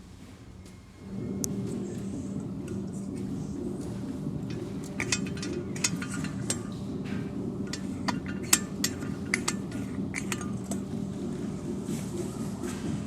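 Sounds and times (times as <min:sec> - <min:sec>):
steady low hum: 0:00.0 - 0:13.0
metallic clinks and taps: 0:03.8 - 0:11.1.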